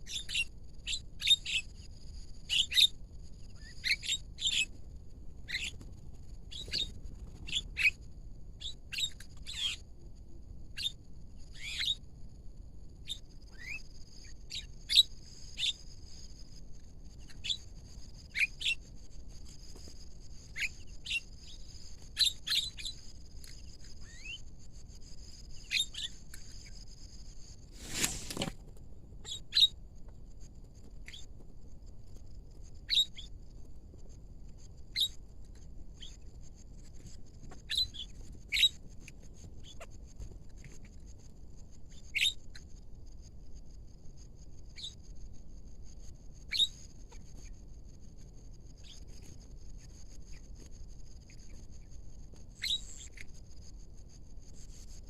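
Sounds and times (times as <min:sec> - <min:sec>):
birds sharp calls: 0:05.5 - 0:05.8.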